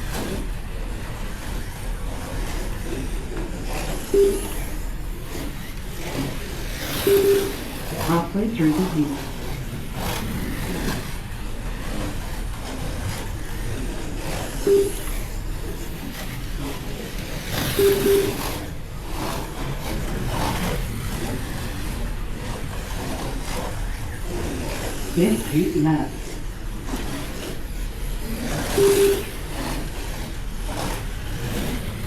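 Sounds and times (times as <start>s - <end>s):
slot cars whirring on track: 0.0s - 32.0s
beeps: 4.1s - 5.4s, 6.9s - 9.0s, 14.6s - 15.3s, 17.7s - 18.7s, 28.7s - 29.4s.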